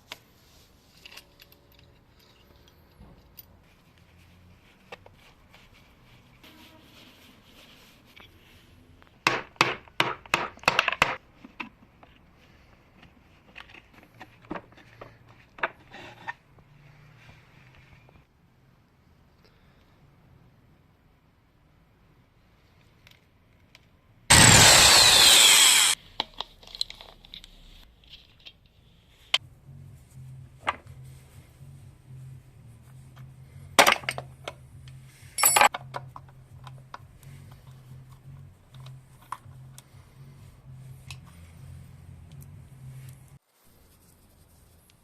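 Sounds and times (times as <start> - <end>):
workshop tool running: 24.3 - 26.0.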